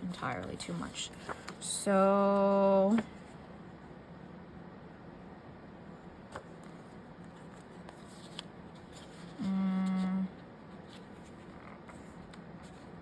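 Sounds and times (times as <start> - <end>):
woman humming: 9.4 - 10.4.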